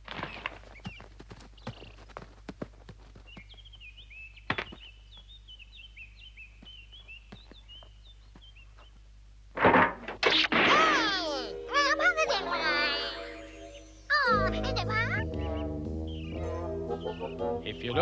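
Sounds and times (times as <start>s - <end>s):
loud thunk: 9.6s - 11.0s
cartoon birds chirping: 10.7s - 18.0s.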